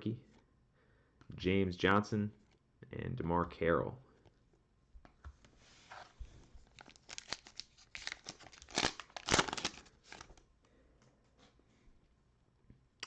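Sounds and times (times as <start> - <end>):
plastic wrapper crinkling and tearing: 6.6 - 10.4.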